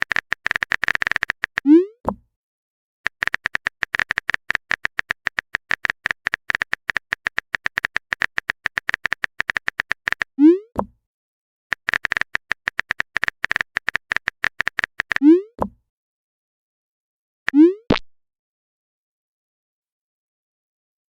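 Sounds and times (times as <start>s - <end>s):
keyboard typing clicks: 0.0s - 2.2s, 3.1s - 10.3s, 11.7s - 15.2s.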